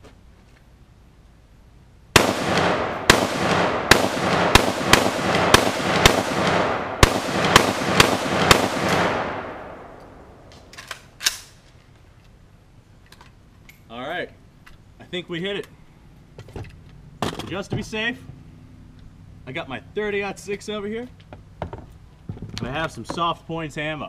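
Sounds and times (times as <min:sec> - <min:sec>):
rifle shots echoing: 0:02.1 - 0:11.5.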